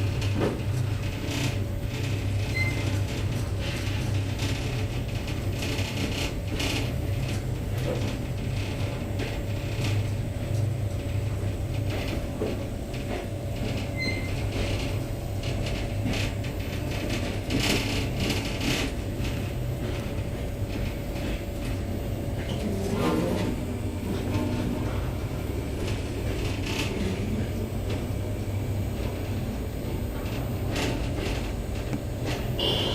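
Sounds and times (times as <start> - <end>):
train low rumble: 0.0 - 32.9
carriage rattles and creaks: 0.1 - 28.2.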